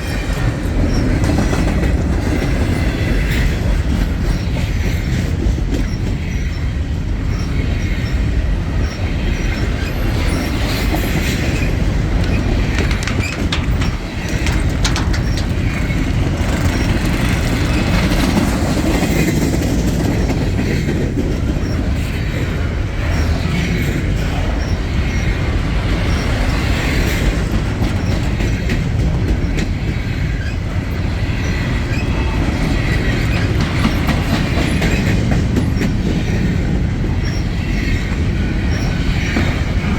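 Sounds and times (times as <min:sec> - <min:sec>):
freight train cars rolling: 0:00.0 - 0:39.9
wheel squeal: 0:05.8 - 0:18.5
wheels clacking over rail joints: 0:08.7 - 0:39.9.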